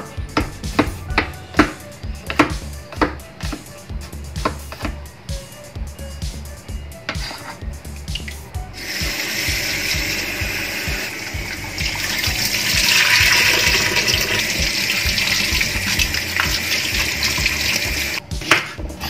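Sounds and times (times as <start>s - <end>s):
music beat: 0.0s - 19.0s.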